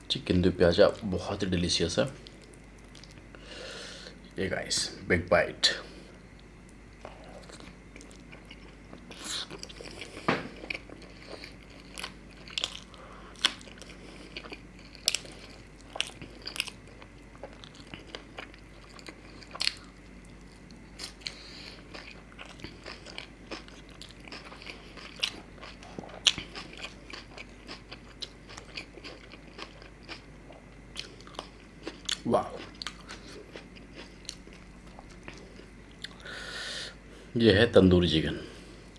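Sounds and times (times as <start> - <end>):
man chewing and biting food: 6.1 - 37.0.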